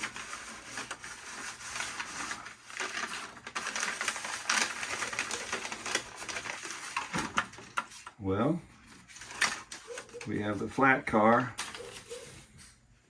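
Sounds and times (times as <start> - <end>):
newspaper rustling and crinkling: 0.0 - 12.8.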